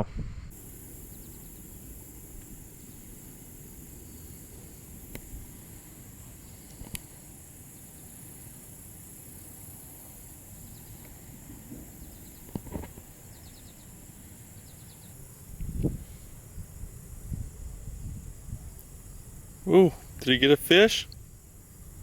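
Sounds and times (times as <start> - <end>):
short chirping trills: 0.5 - 4.8
insect chorus: 0.5 - 22.0.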